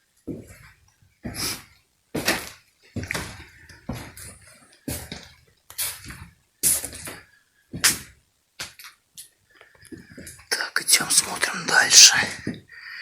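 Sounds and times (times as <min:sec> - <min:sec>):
footsteps crunching on littered floor: 0:01.2 - 0:08.8.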